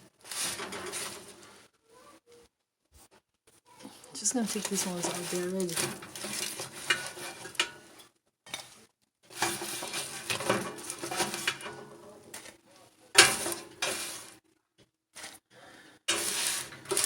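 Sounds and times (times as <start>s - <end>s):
utensils scraping a pan: 0.2s - 1.6s, 3.8s - 14.4s, 15.2s - 15.4s, 16.1s - 17.0s.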